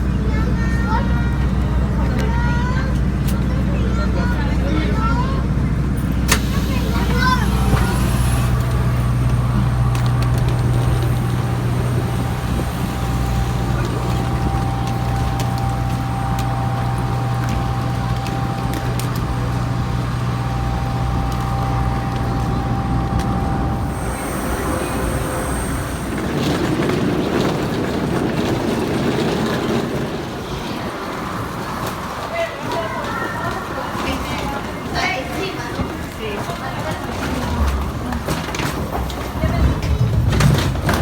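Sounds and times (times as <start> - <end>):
jet machinery droning hum: 4.7 - 30.4
faint steady whine: 6.5 - 27.0
rough rushing noise: 19.2 - 30.8.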